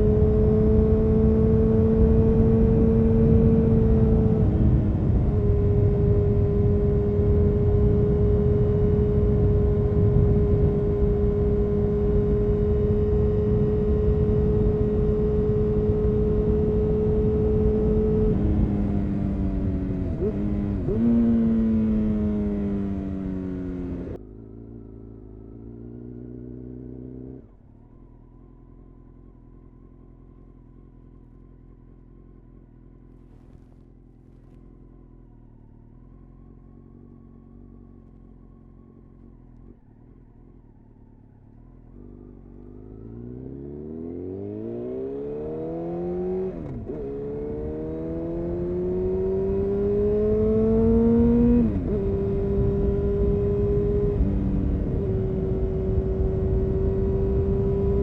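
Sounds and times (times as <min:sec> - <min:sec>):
motorcycle engine revving and idling: 0:00.0 - 0:58.0
motorcycle gear upshift: 0:33.1 - 0:34.7.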